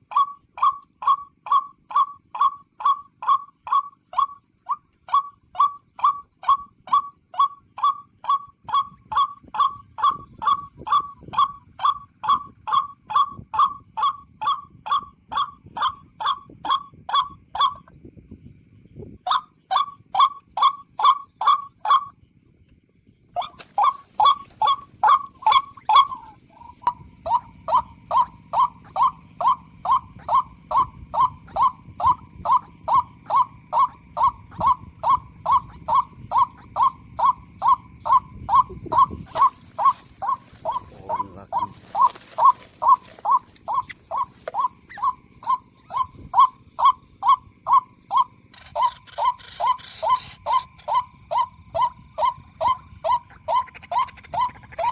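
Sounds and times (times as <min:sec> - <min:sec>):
waterhen kwak calls: 0:00.0 - 0:17.9, 0:19.3 - 0:22.1, 0:23.4 - 0:54.9.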